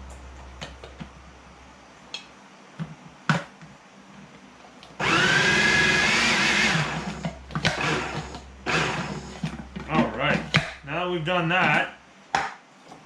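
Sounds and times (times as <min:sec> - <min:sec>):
food processor motor whining: 0:05.0 - 0:10.7.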